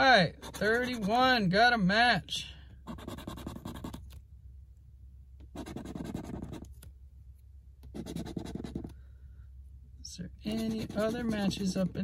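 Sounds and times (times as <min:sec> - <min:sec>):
scratching lottery ticket coating: 0:05.6 - 0:06.6, 0:10.4 - 0:12.0.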